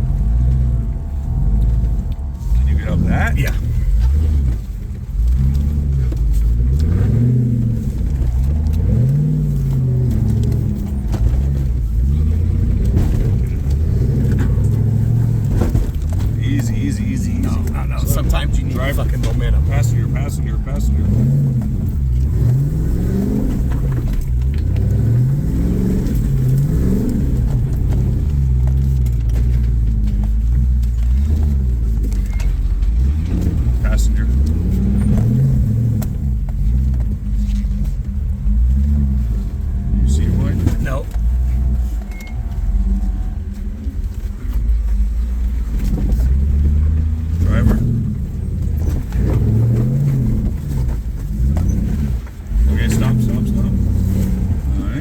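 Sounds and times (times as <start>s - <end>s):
engine revving: 0.0s - 55.0s.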